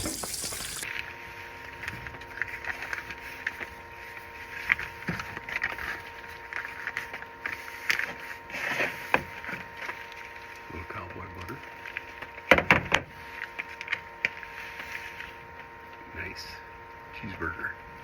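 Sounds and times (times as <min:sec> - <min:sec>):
campfire crackling and popping: 0:00.0 - 0:00.9.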